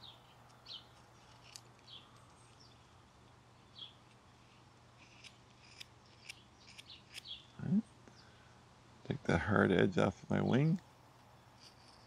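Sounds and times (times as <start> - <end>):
bird chirping: 0.0 - 3.0, 3.6 - 4.6, 6.2 - 8.5
knife cutting wood ticks: 0.5 - 2.6, 5.0 - 7.3.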